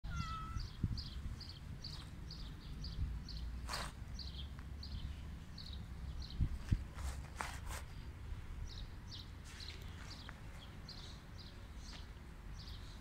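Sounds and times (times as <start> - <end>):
small bird chirping: 0.1 - 6.5.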